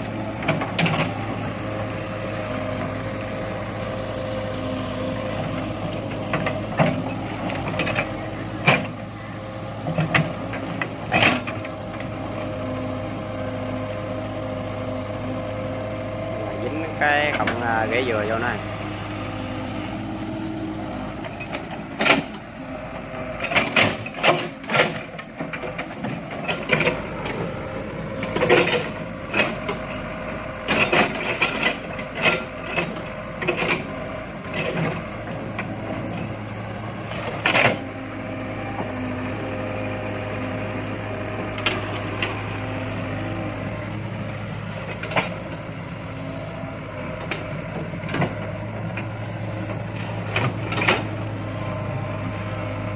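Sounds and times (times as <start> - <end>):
excavator engine running: 0.0 - 52.9
knocks clanks and cracks of digging: 0.3 - 1.3, 5.3 - 9.1, 9.7 - 12.2, 16.7 - 18.6, 21.0 - 22.4, 23.4 - 38.1, 41.4 - 46.0, 47.1 - 51.2.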